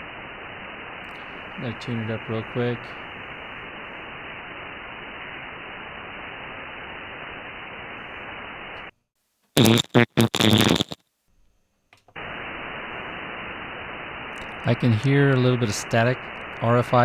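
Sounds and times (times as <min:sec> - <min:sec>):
radio receiver static hiss: 0:00.9 - 0:04.5, 0:09.6 - 0:11.1, 0:12.1 - 0:17.0
loud interference buzz: 0:09.6 - 0:11.0.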